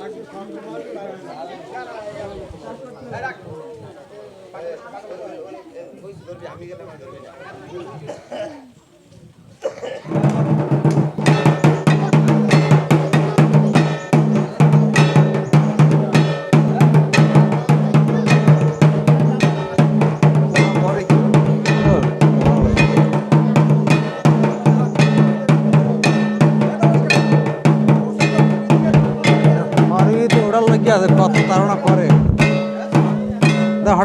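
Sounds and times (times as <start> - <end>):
drums beating: 10.0 - 34.0
clanking metal percussion: 10.1 - 34.0.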